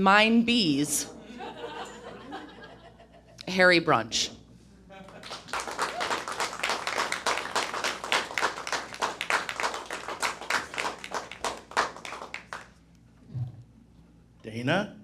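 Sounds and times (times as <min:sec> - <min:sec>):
audience applauding: 0:05.0 - 0:12.8.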